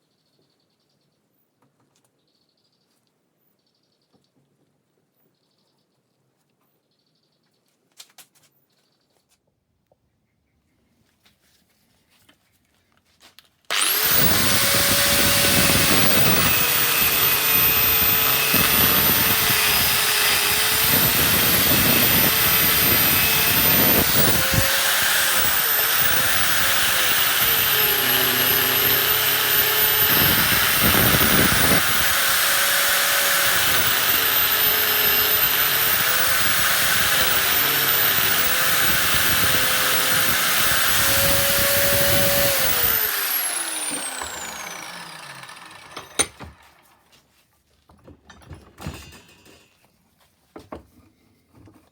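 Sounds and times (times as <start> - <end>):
angle grinder cutting steel: 13.7 - 46.8.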